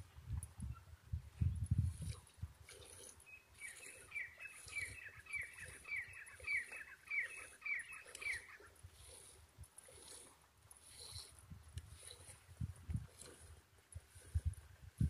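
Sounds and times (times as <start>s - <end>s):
bird calling: 3.2s - 9.2s.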